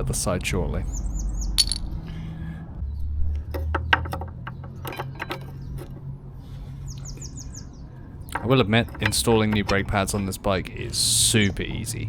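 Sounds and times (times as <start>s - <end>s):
bird chirping: 0.8s - 1.9s, 6.9s - 10.3s
metallic clicks of tools and parts: 1.6s - 1.9s, 3.4s - 6.0s, 8.3s - 10.4s.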